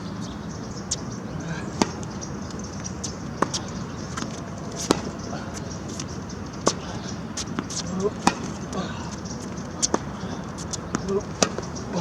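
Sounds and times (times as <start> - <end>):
tennis racket hitting ball: 1.8 - 2.1, 3.4 - 6.0, 6.6 - 8.8, 9.8 - 12.0
tennis ball bouncing: 1.8 - 12.0.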